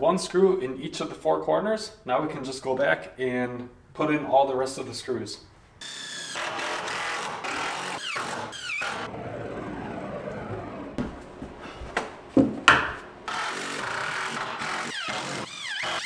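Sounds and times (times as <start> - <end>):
sharp knocks: 12.0 - 13.0.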